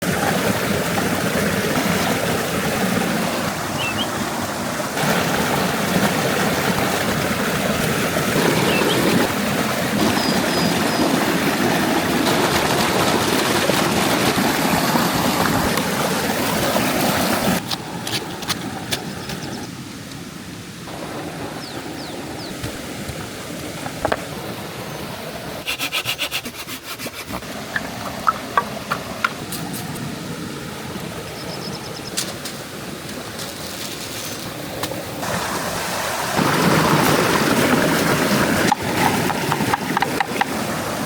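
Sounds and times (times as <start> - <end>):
rushing water: 0.0 - 41.0.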